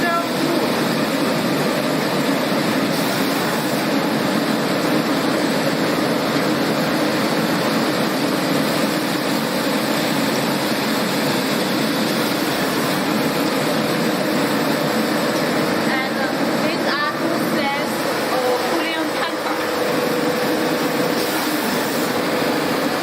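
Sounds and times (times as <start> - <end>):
production line machine noise: 0.0 - 23.0.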